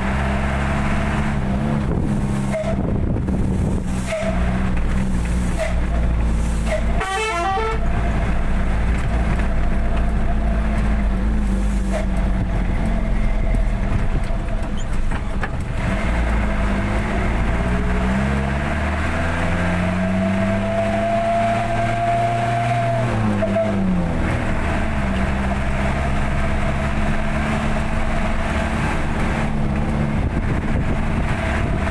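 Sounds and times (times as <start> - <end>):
truck engine running: 0.0 - 31.9.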